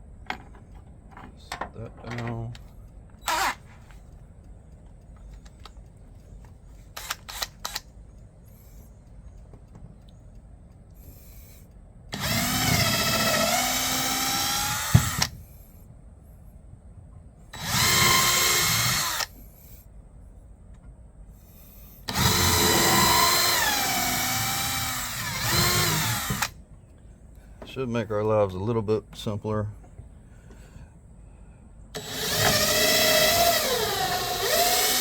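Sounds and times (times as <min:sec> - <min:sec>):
power drill whining into wood: 0:03.2 - 0:03.7, 0:12.1 - 0:15.3, 0:17.6 - 0:19.4, 0:22.1 - 0:26.6, 0:32.0 - 0:35.0.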